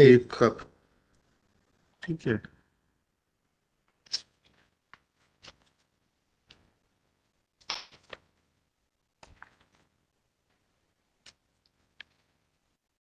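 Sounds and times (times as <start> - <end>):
paper rustling and clicking: 4.0 - 5.9, 7.6 - 8.4.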